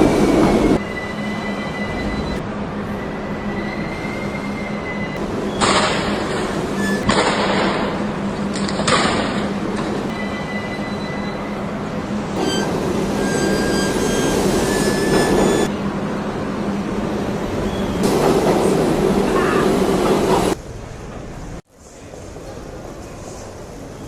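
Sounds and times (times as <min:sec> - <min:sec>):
high wheel squeals: 0:00.0 - 0:07.2, 0:10.1 - 0:16.5, 0:17.5 - 0:18.1
subway train rumbling: 0:00.0 - 0:24.0.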